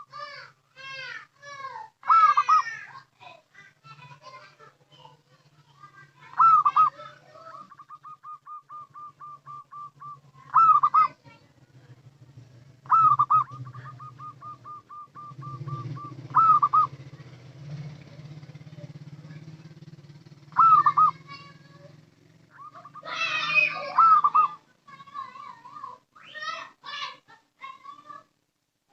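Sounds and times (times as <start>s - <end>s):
loud looping coos: 1.9s - 3.0s, 5.8s - 11.3s, 11.9s - 25.2s
dove cooing: 2.0s - 2.9s, 5.6s - 25.0s.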